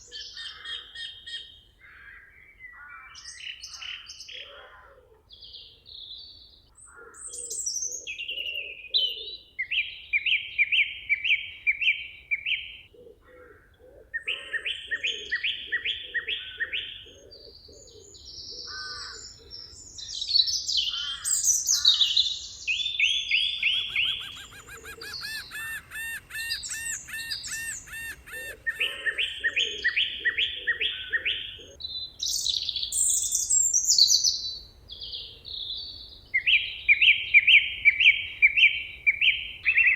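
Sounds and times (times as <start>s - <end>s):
songbirds singing: 0.0s - 39.9s
high whistled bird notes: 22.7s - 30.1s
rapid chattering bird trill: 23.5s - 29.4s.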